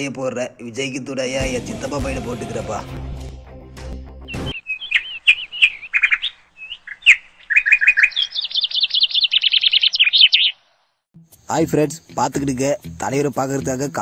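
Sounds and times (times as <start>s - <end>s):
bird chirping: 4.3s - 11.0s.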